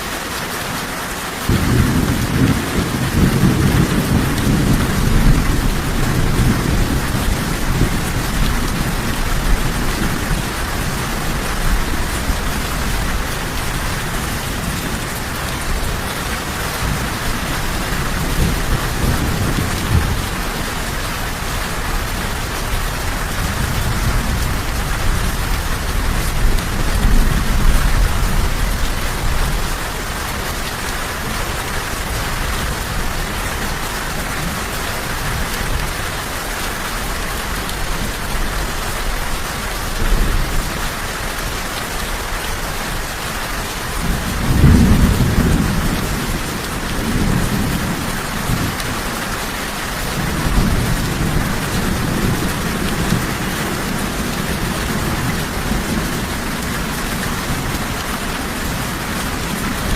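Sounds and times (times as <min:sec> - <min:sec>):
steady rain falling: 0:00.0 - 0:59.9
rolling thunder: 0:01.5 - 0:13.6, 0:44.0 - 0:48.8.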